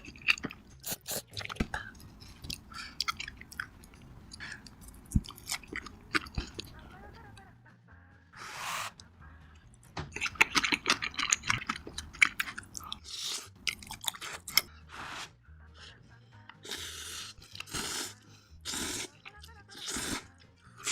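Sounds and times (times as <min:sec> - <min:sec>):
crunchy chewing of food: 0:00.0 - 0:06.8, 0:10.1 - 0:14.7
quiet background music: 0:00.0 - 0:20.9.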